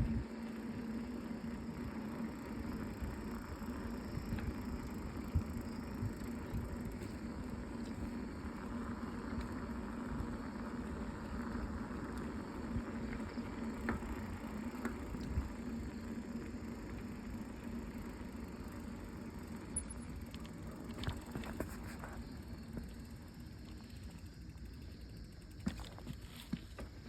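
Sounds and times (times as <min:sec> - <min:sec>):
road ride rumble: 0:00.0 - 0:27.0.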